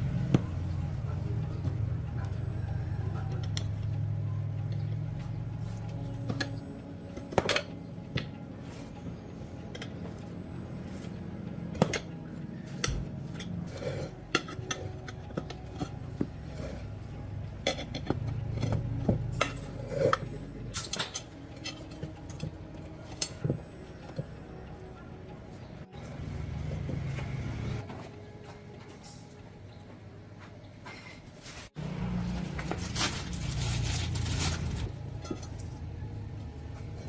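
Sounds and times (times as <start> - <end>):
metal tools clinking and clattering: 17.6 - 24.2.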